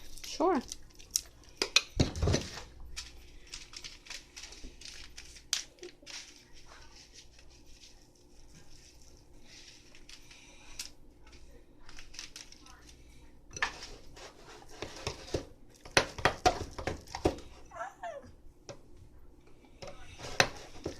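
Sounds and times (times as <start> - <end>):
foam beads crinkling and clicking: 0.0 - 1.7, 2.6 - 13.1.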